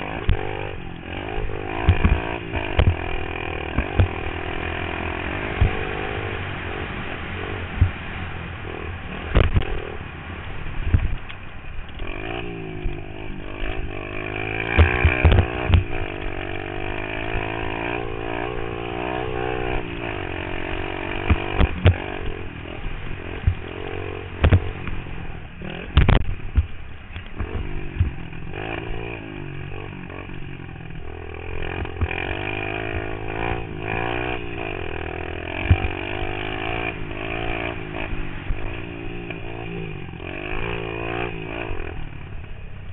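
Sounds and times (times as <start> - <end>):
motorbike engine revving: 0.0 - 42.9
sharp knocks: 1.8 - 3.0, 14.8 - 15.9, 25.9 - 26.7.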